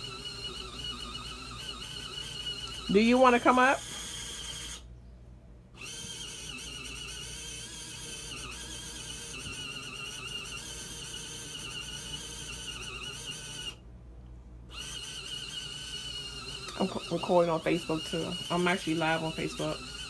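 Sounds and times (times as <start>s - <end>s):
washing machine motor whining: 0.0s - 4.9s, 5.8s - 13.8s, 14.7s - 20.0s.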